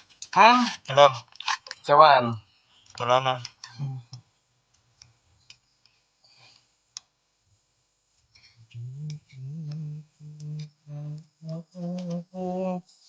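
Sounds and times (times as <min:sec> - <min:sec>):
man humming a tune: 0:03.7 - 0:04.2, 0:08.6 - 0:12.8.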